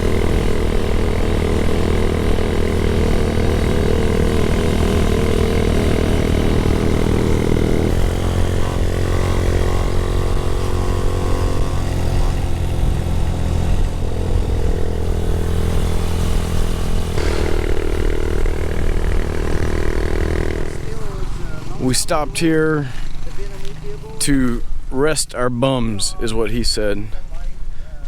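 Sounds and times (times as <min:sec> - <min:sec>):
motorcycle engine running: 0:00.0 - 0:24.9
road noise: 0:00.0 - 0:28.0
wind: 0:00.0 - 0:28.0.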